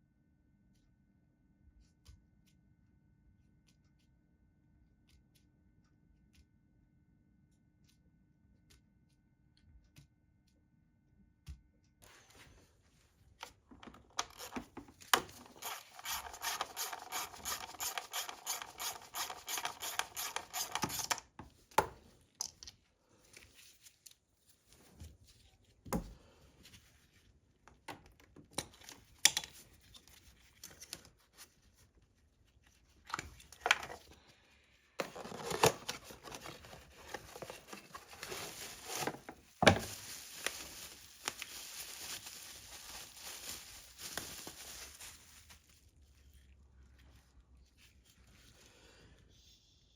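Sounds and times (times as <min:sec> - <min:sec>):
hand tool rasping strokes: 0:15.4 - 0:21.2.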